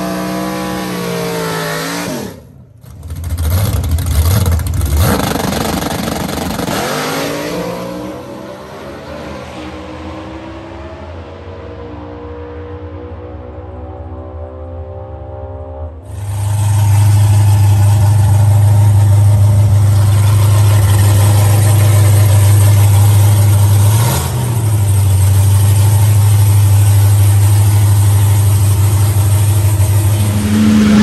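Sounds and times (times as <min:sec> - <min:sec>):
loud car engine idling: 0:02.6 - 0:06.8, 0:16.1 - 0:31.0.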